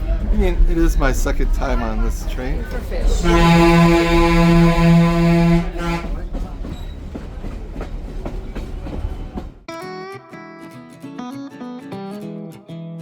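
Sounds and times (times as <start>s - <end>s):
rolling train rumble and clatter: 0.0s - 9.7s
train horn blast: 3.0s - 6.2s
guitar music: 9.7s - 13.0s.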